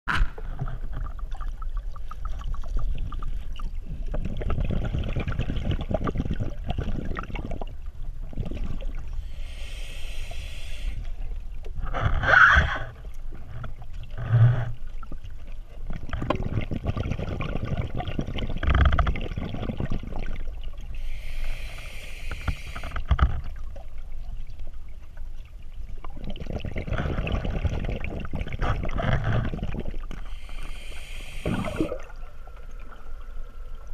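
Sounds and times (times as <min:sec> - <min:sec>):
hiss of rushing water: 0:09.2 - 0:11.1, 0:21.0 - 0:23.0, 0:30.2 - 0:32.0.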